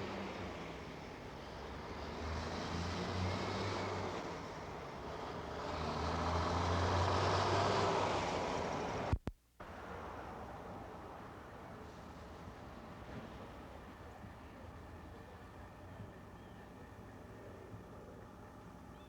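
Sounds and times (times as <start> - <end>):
vehicles driving past: 0.0 - 18.9.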